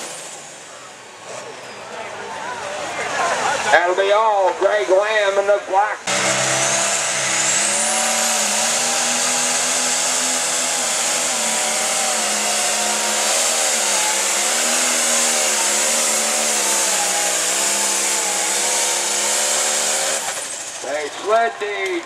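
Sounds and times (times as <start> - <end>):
diesel engine running hard: 0.0 - 4.0, 4.6 - 22.0
high turbo whine: 4.7 - 21.4.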